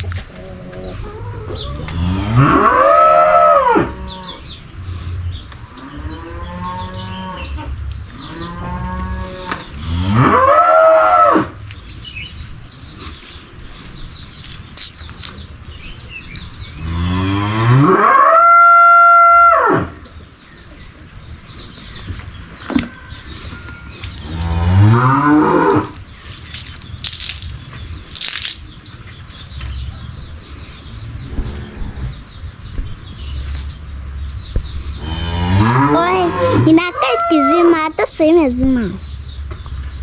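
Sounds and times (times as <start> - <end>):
cow mooing: 35.0 - 36.6.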